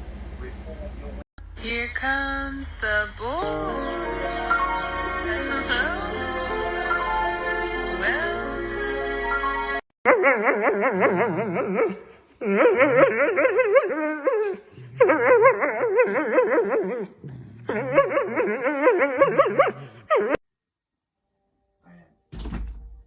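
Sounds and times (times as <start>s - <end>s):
dog howling: 10.1s - 20.4s.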